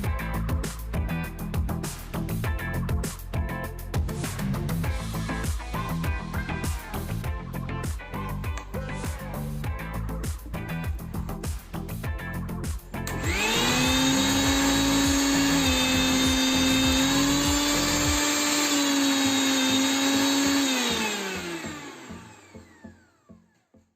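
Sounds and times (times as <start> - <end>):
mixer grinder motor whine: 13.0 - 23.7.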